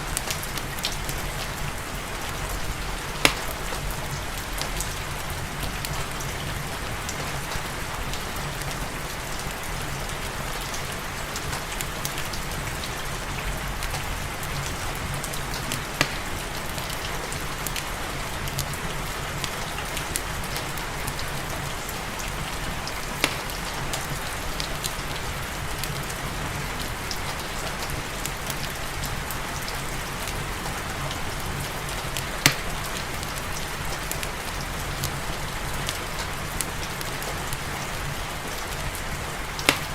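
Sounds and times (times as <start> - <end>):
fireplace crackling: 0.0 - 39.9
steady rain falling: 0.0 - 39.9
sharp cracks: 3.2 - 3.9, 23.1 - 24.1, 39.6 - 39.9.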